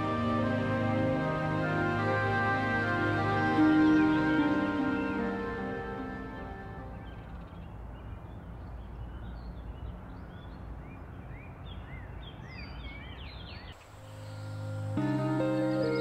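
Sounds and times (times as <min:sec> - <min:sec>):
music: 0:00.0 - 0:07.2, 0:14.1 - 0:16.0
birds chirping: 0:00.0 - 0:16.0.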